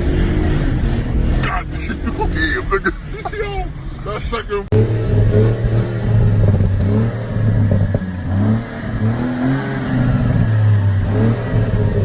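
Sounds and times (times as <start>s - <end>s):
car engine accelerating hard: 4.7s - 12.0s.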